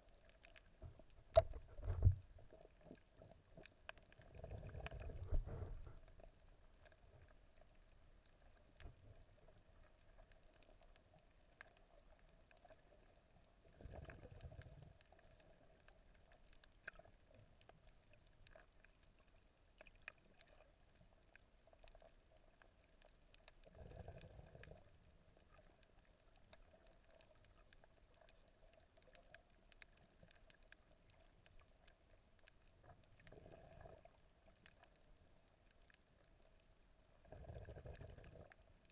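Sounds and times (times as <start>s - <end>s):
small clicks and crackles: 0.0s - 38.9s
muffled water surge: 4.4s - 6.3s.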